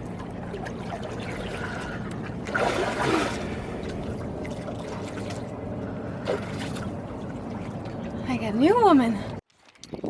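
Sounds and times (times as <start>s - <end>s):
water splashing and trickling: 0.0s - 10.0s
loud water splash: 0.9s - 3.9s.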